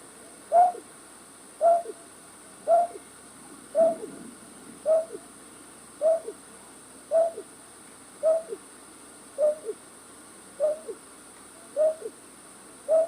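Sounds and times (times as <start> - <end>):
faint steady hiss: 0.0 - 13.0
recorded owl-like two-note hoot: 0.5 - 0.8, 1.6 - 2.0, 2.7 - 3.0, 3.8 - 4.1, 4.9 - 5.2, 6.0 - 6.4, 7.1 - 7.4, 8.2 - 8.6, 9.4 - 9.8, 10.6 - 11.0, 11.8 - 12.1.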